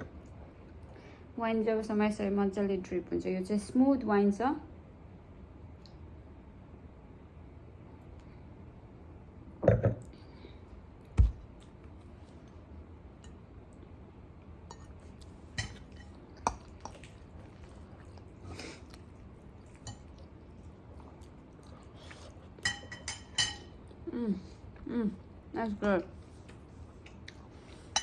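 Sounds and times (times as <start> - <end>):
quiet chewing: 14.7 - 22.8, 23.6 - 28.0
tableware clinking: 22.6 - 23.7.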